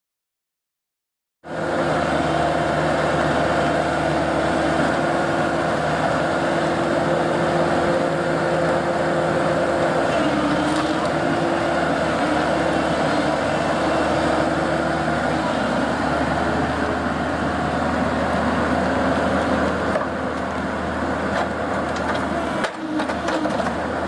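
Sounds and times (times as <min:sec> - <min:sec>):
excavator engine and hydraulic hum: 0:01.5 - 0:24.0.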